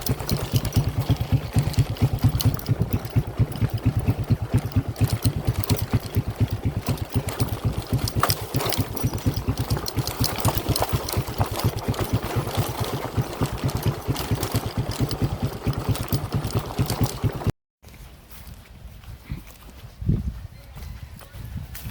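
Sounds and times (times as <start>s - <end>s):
engine running with pulsing beat: 0.0s - 17.5s.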